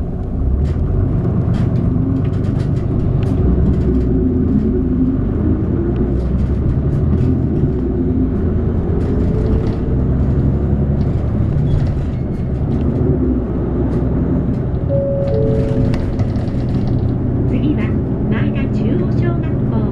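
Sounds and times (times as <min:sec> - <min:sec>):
bus engine drone: 0:00.0 - 0:19.9
road rumble: 0:00.0 - 0:19.9
steady tone: 0:14.9 - 0:16.7.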